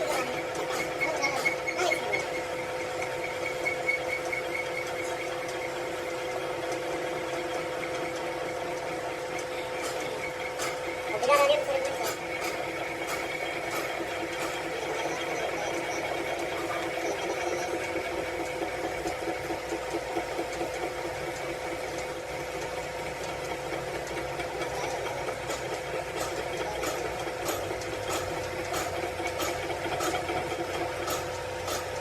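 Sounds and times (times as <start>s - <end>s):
machine rattling: 0.0s - 32.0s.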